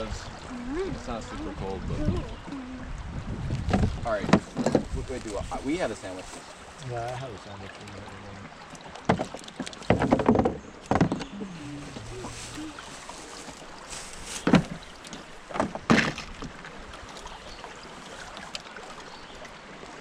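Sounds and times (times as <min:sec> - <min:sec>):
hollow knocks on a boat: 0:03.6 - 0:05.0, 0:09.0 - 0:11.3, 0:14.4 - 0:14.8, 0:15.5 - 0:16.6
hiss of moving water: 0:11.4 - 0:14.5.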